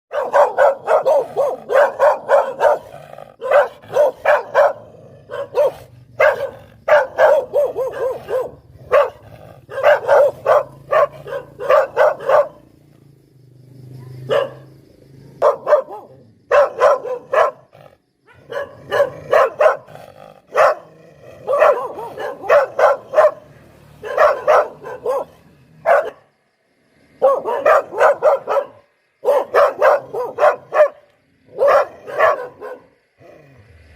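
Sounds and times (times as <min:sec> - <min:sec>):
dog barking sharply: 0:00.1 - 0:12.6, 0:14.2 - 0:14.7, 0:15.4 - 0:17.7, 0:18.3 - 0:19.9, 0:20.5 - 0:20.9, 0:21.5 - 0:26.2, 0:27.2 - 0:31.0, 0:31.6 - 0:32.9.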